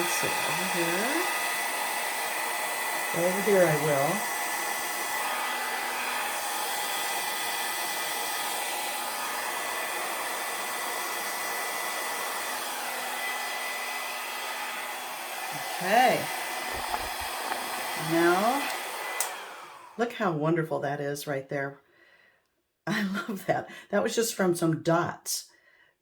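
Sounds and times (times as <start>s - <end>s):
hair dryer blowing: 0.0s - 20.2s.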